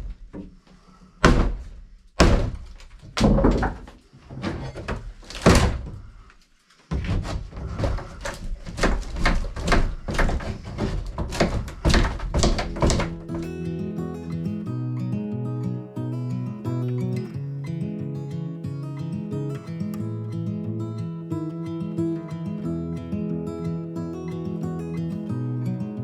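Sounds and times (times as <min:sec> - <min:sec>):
heavy blows on wood: 0:01.2 - 0:03.8, 0:06.9 - 0:13.5
guitar music: 0:12.5 - 0:26.0.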